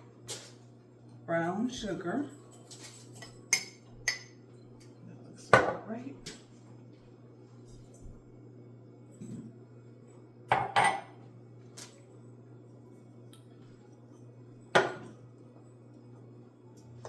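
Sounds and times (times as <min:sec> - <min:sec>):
dishes and utensils knocking: 0:10.5 - 0:11.1.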